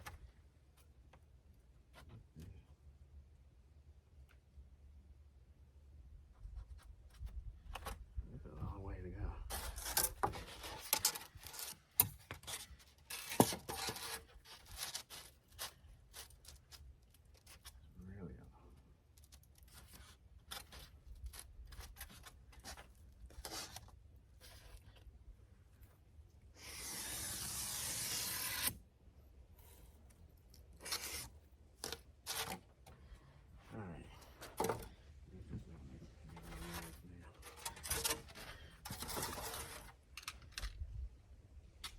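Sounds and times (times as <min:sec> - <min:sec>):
rasping hiss: 0:26.6 - 0:28.7
hands rubbing insulation material: 0:29.6 - 0:33.1.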